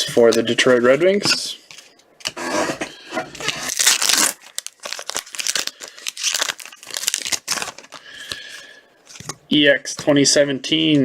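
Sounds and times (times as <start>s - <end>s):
foil wrapper crinkling and tearing: 3.4s - 9.3s.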